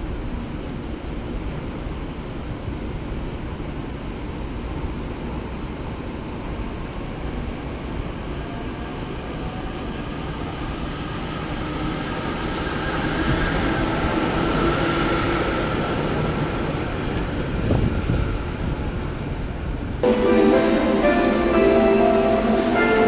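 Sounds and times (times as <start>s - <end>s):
electric train whine: 8.1s - 23.0s.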